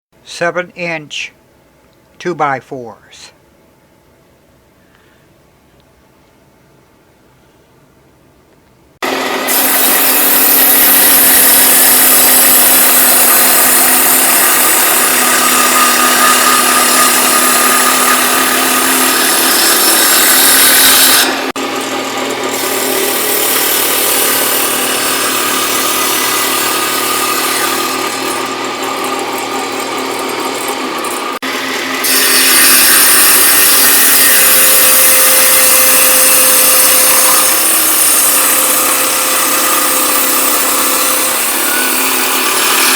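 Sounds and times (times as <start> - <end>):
woodworking power tool drone: 9.0 - 42.9.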